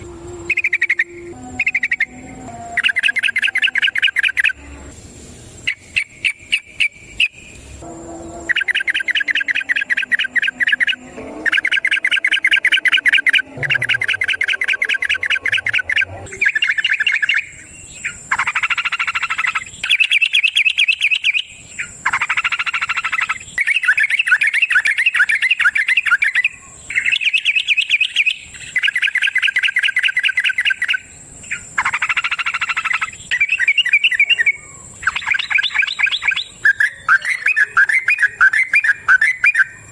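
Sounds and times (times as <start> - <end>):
faint high tone: 0.0 - 4.9, 7.8 - 16.4
bulbul chattering song: 0.0 - 39.9.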